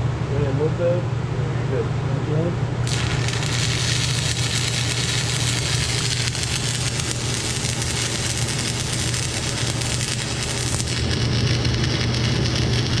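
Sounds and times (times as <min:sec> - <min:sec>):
welding arc sizzling and crackling: 0:02.8 - 0:13.0
welding machine low hum: 0:02.8 - 0:13.0.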